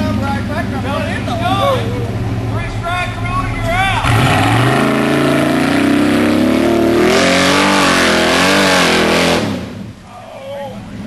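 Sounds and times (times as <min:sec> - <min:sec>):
truck engine revving hard: 0:00.0 - 0:10.0
rush of noise: 0:01.6 - 0:10.1.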